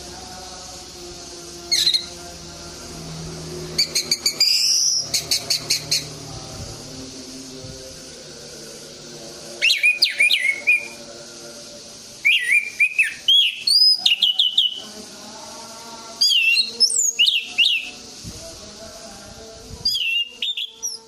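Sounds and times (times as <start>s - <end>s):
thrush singing whistled notes: 0.0s - 21.0s.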